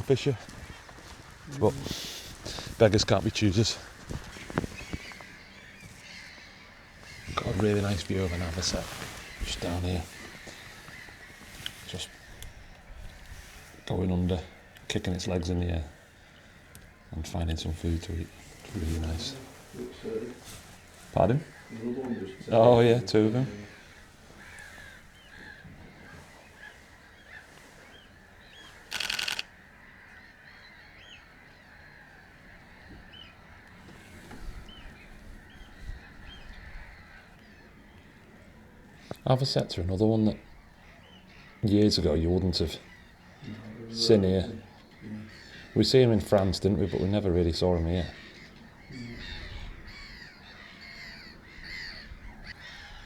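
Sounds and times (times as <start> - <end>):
distant waterbirds calling: 0.0 - 53.0
short upward-sliding bird calls: 18.3 - 29.6.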